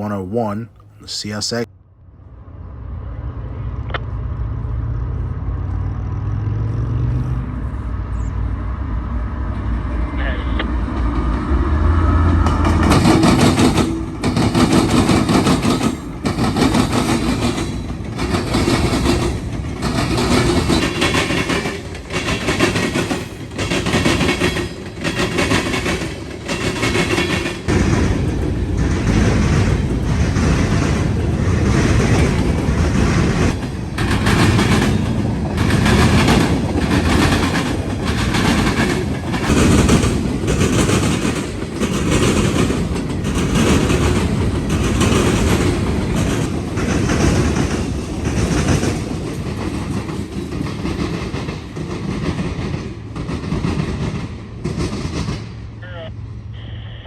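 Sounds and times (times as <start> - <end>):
train wheels clattering on rails: 10.7 - 55.8.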